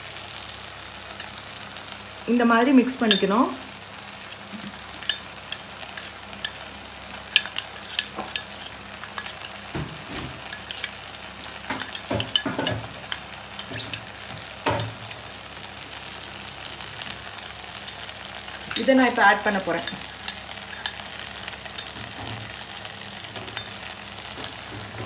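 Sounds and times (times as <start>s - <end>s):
frying sizzle: 0.0s - 25.0s
spoon stirring slurry in bowl: 7.3s - 9.5s, 10.5s - 11.0s, 11.7s - 14.0s.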